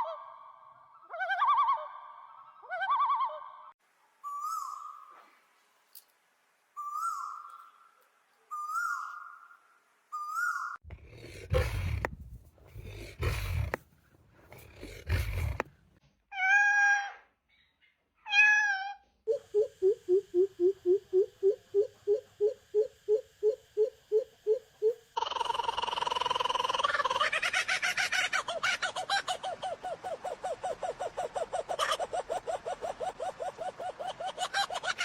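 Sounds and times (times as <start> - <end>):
steady pulsing tone: 19.3 - 25.2.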